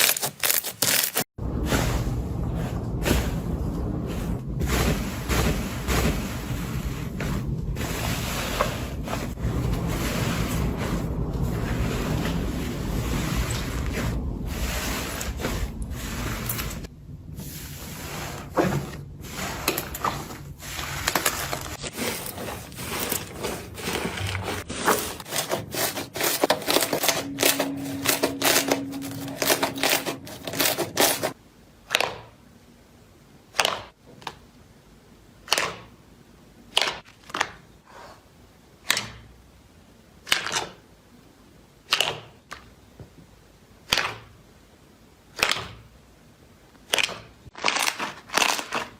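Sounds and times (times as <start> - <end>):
slime crackling and popping: 46.9 - 48.9.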